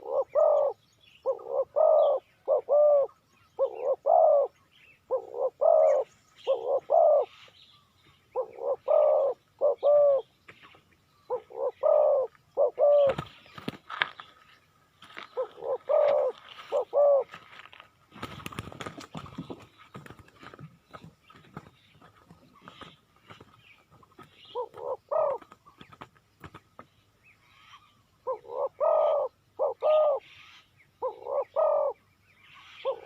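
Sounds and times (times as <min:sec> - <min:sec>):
dove cooing: 0:00.0 - 0:07.5, 0:08.3 - 0:10.3, 0:11.3 - 0:13.7, 0:15.1 - 0:17.5, 0:24.2 - 0:25.6, 0:28.2 - 0:30.4, 0:31.0 - 0:32.0, 0:32.8 - 0:33.0.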